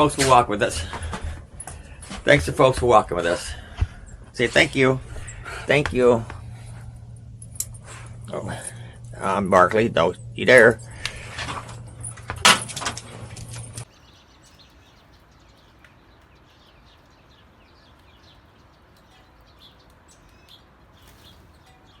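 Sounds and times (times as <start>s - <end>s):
steady hum: 0.0s - 13.9s
loud clatter: 10.2s - 13.8s
bird chirps: 13.6s - 22.0s.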